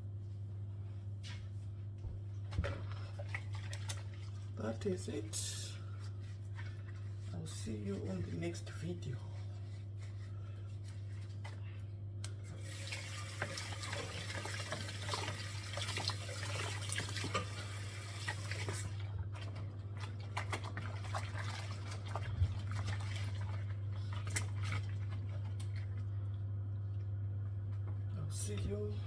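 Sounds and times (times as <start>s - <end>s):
tap water running into sink: 12.6s - 18.9s.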